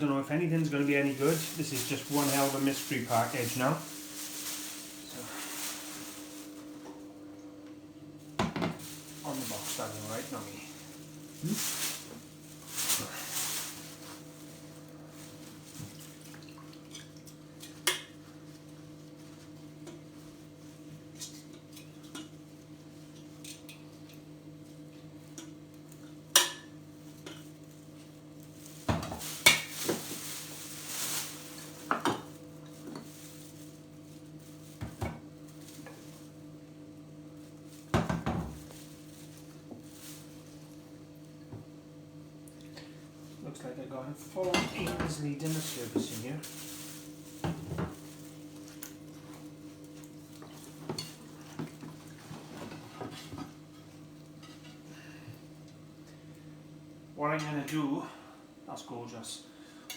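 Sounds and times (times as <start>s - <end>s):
faint steady hum: 0.0s - 59.9s
rustling: 0.6s - 6.8s, 8.8s - 16.1s, 28.6s - 34.8s, 45.4s - 48.8s.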